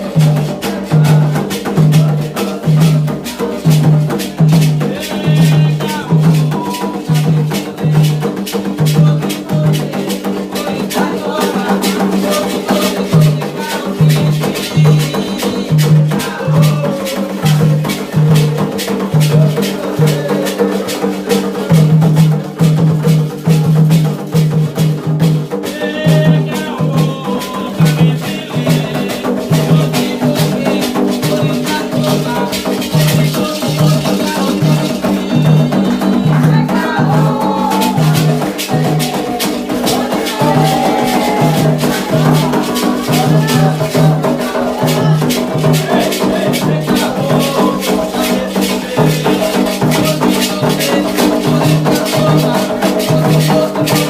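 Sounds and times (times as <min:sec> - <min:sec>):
voices singing: 0:00.0 - 0:23.9, 0:25.6 - 0:54.0
hand drums beating rhythm: 0:00.0 - 0:54.0
shaking rattles: 0:38.0 - 0:54.0.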